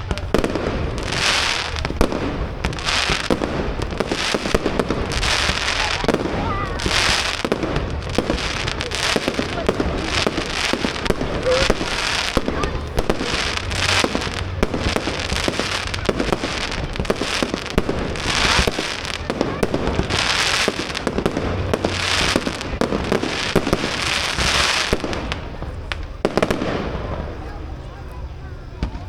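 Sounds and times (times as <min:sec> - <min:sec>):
fireworks bangs and crackling: 0:00.0 - 0:29.0
fireworks hissing: 0:00.0 - 0:29.0.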